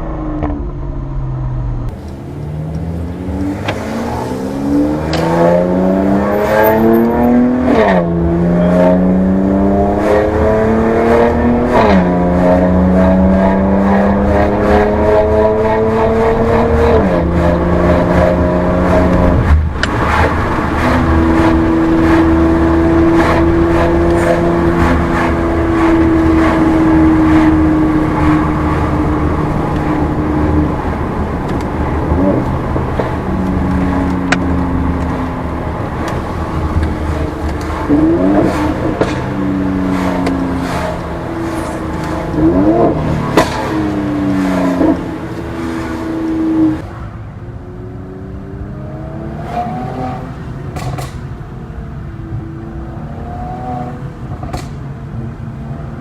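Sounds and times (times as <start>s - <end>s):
car engine and exhaust: 0.0s - 56.0s
short rising revs: 1.9s - 13.3s, 48.6s - 50.7s.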